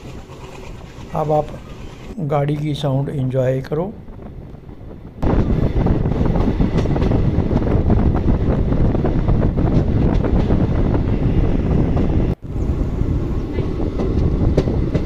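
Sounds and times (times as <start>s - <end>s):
train wheels rattling on rails: 4.1s - 12.4s, 13.2s - 15.0s.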